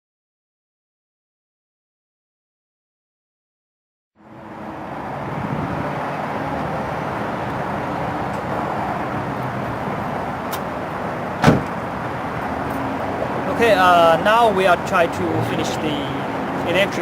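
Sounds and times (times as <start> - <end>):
car road noise: 4.2 - 17.0
sharp knock: 11.4 - 11.7.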